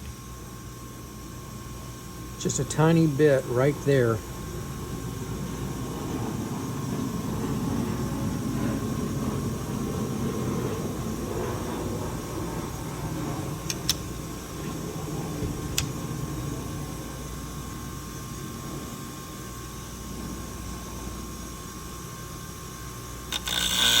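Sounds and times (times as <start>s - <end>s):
scissor sharpener grinding hum: 13.6s - 14.8s, 23.2s - 24.0s
sharp clicks: 13.7s - 14.1s.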